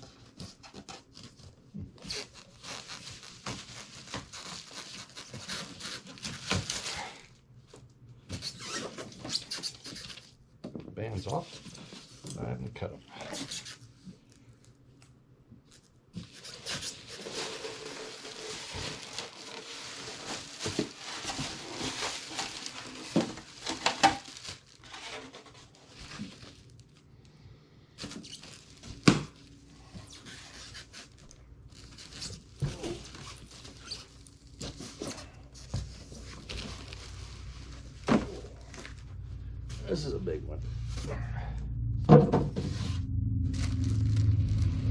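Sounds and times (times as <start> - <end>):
packaging crinkling and scraping: 0.0 - 7.4, 15.7 - 27.1, 28.0 - 39.9.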